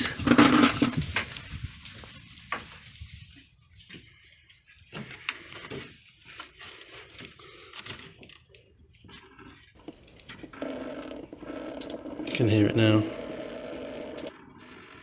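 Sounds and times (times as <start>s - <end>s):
coolant dripping into a bucket: 11.8s - 15.0s.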